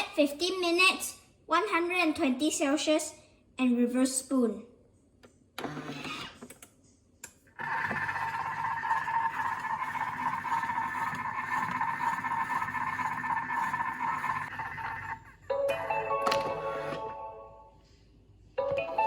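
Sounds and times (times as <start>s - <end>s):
food processor whirring: 5.6s - 6.4s, 7.6s - 15.4s.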